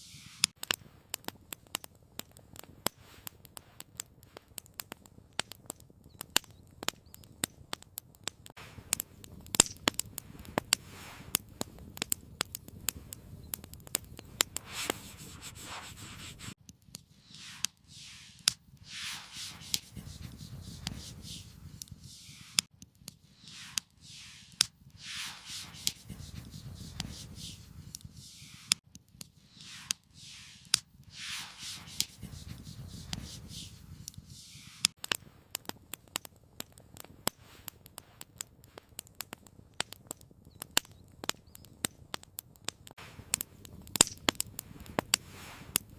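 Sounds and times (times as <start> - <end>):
rustling swells: 0.0 - 0.6, 10.2 - 11.6, 14.3 - 28.8, 29.4 - 34.9, 44.6 - 45.8
campfire crackling: 0.0 - 45.9.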